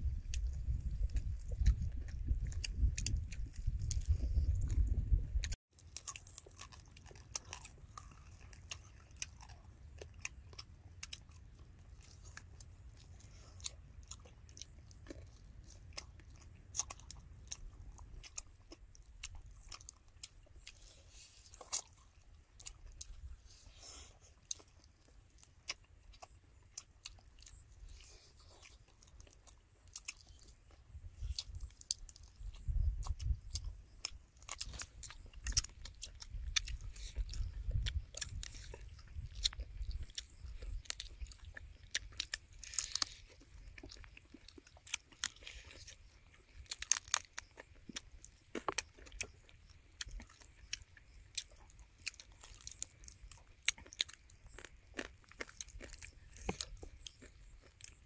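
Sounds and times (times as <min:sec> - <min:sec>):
chewing and crunching: 0:00.0 - 0:58.0
crisp fried skin crackling: 0:31.4 - 0:58.0.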